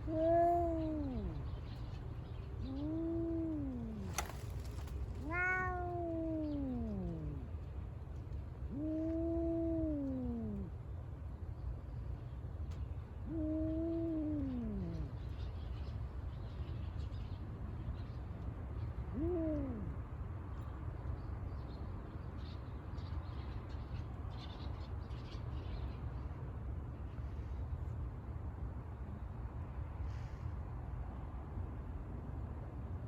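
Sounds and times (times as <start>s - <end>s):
cat meowing: 0.0s - 1.4s, 2.6s - 4.5s, 5.2s - 7.4s, 13.3s - 15.1s, 19.1s - 20.0s.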